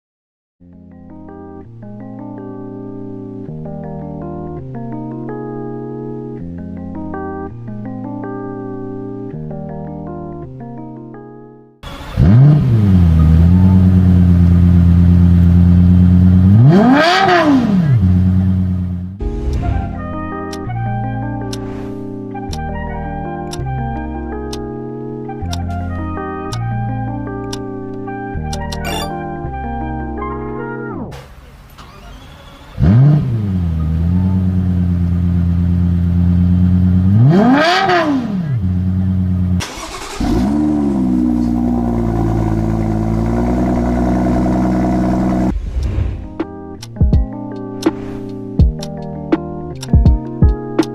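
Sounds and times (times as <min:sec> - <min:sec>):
engine rev blip: 0:11.8 - 0:14.2, 0:28.6 - 0:29.2
second car engine starting: 0:11.8 - 0:19.9, 0:31.2 - 0:47.0
car engine starting and idling: 0:11.8 - 0:20.7, 0:31.2 - 0:47.0
throttle blip: 0:28.6 - 0:29.2.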